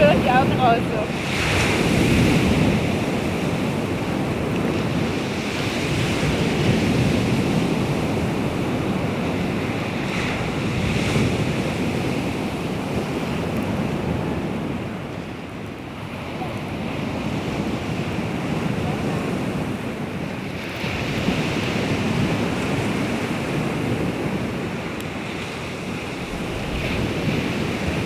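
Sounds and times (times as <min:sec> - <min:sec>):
waves breaking on shore: 0:00.0 - 0:28.0
wind rumbling on microphone: 0:00.0 - 0:28.0.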